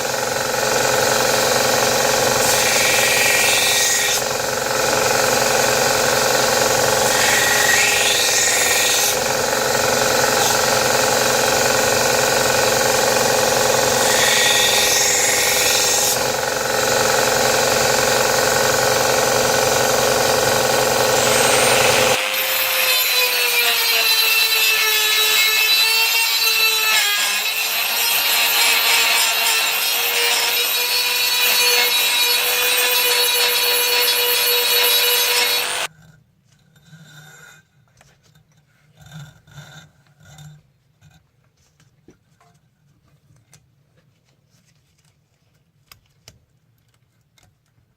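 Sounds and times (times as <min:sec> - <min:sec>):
power grinder grinding steel: 0:00.0 - 0:35.9.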